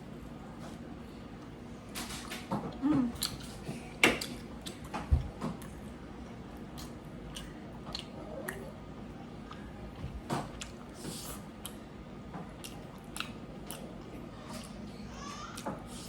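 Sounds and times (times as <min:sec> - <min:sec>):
person chewing food: 0:03.1 - 0:11.8, 0:12.4 - 0:14.8.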